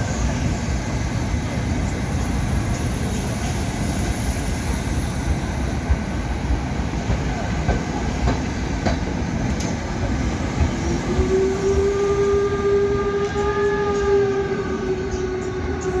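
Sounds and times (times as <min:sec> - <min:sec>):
steam train rumbling: 0:00.0 - 0:16.0
train whistle: 0:10.9 - 0:16.0.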